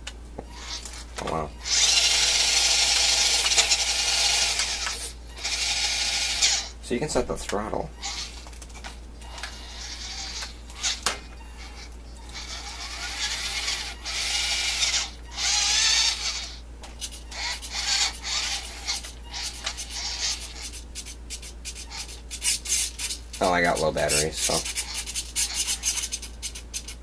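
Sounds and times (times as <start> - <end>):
electric motor whine: 1.6 - 6.7.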